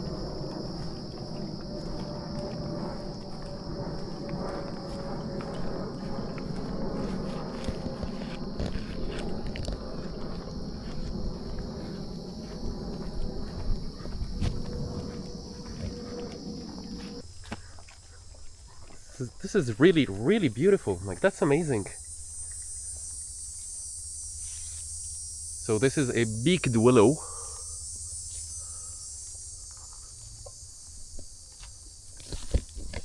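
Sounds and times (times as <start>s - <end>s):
low rumble: 0.0s - 17.2s
footsteps on trail: 0.0s - 19.1s
faint hum: 0.0s - 19.6s
insect drone: 0.0s - 33.0s.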